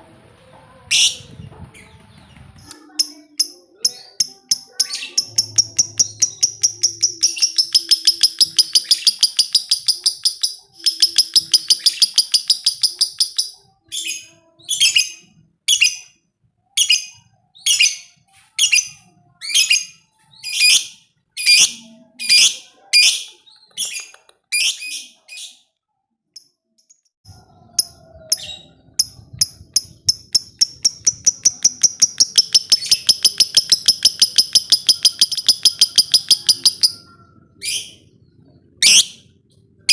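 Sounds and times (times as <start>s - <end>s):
lovebird chattering high chirps: 2.7s - 16.1s, 27.8s - 38.0s, 38.8s - 39.2s.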